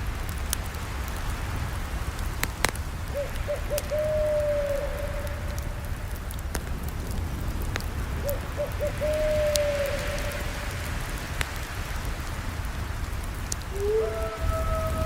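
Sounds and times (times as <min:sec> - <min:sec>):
campfire crackling: 0:00.0 - 0:15.0
animal calling: 0:13.7 - 0:15.0.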